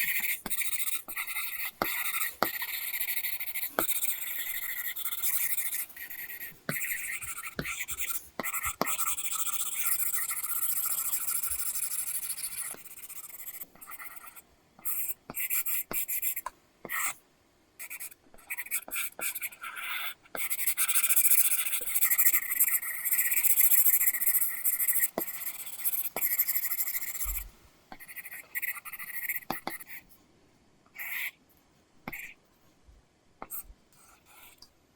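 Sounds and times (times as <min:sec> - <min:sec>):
stylus scratching on screen: 0:00.0 - 0:17.2, 0:17.8 - 0:30.1
stylus tapping on screen: 0:06.0 - 0:09.6.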